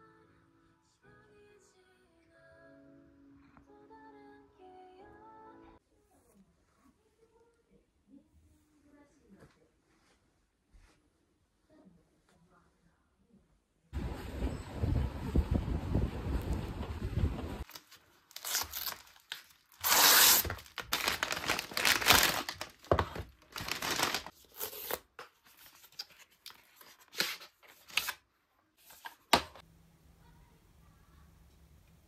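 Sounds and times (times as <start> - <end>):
wind noise: 14.0 - 17.6
paper tearing and crinkling: 17.6 - 28.2.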